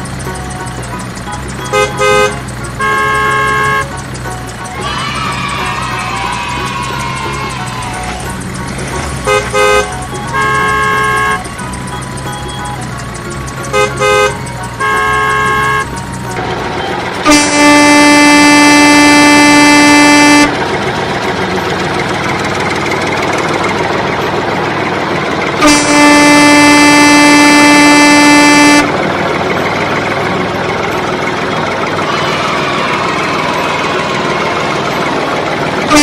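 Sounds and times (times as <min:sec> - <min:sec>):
vehicle horn blasts: 0:01.4 - 0:04.2, 0:09.2 - 0:20.6, 0:25.6 - 0:29.0.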